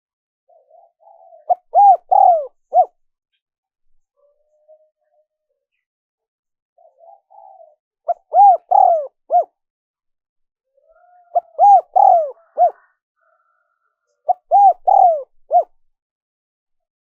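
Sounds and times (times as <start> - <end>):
dove cooing: 0.5 - 3.0, 6.8 - 9.6, 10.7 - 13.4, 14.2 - 15.8.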